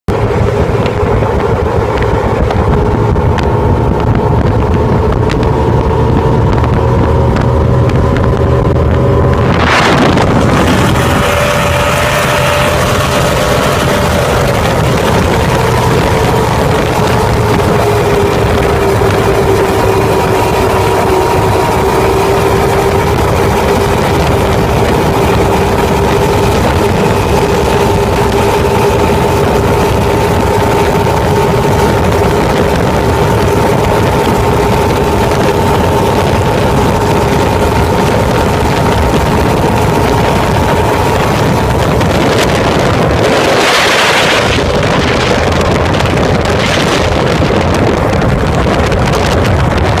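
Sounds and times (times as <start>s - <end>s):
boat engine humming: 0.0s - 50.0s
water rushing past hull: 0.1s - 50.0s
wind buffeting microphone: 0.1s - 50.0s.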